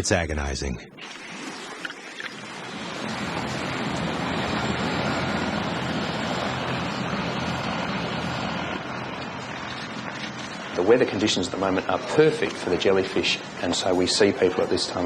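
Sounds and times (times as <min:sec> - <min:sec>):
ocean waves and surf: 0:01.0 - 0:10.9.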